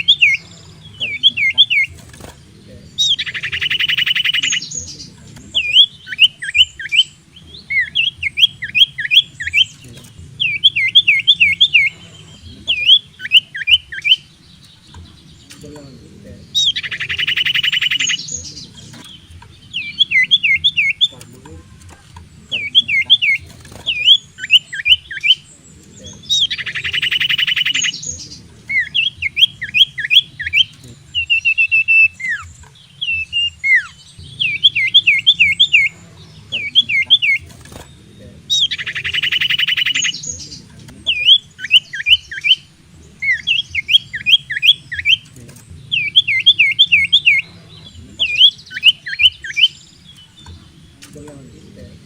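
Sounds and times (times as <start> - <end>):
bird singing whistled notes: 0.0 - 21.7, 22.4 - 52.0
bird buzzy churr: 0.0 - 52.0
low steady hum: 0.0 - 52.0.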